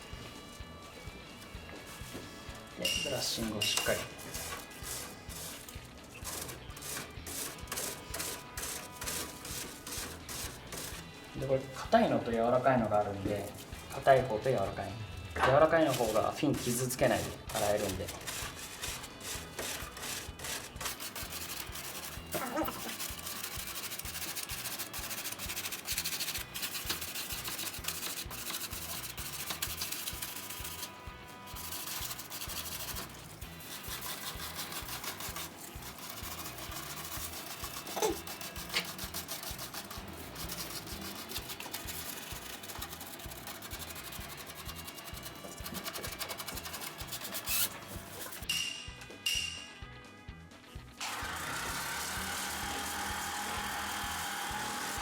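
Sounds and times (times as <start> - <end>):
brush scrubbing metal fins: 3.0 - 11.1, 15.5 - 48.5.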